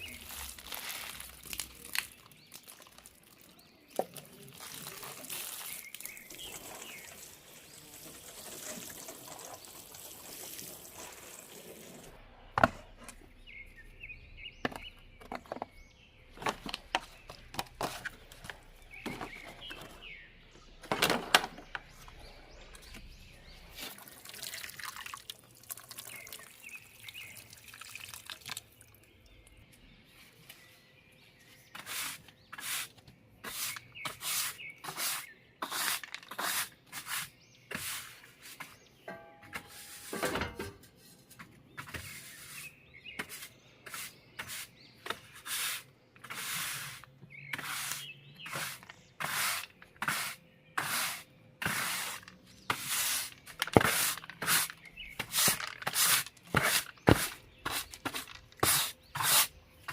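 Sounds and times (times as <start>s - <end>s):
water running from tap: 4.6s - 12.1s
dishes and utensils clinking: 39.1s - 41.0s.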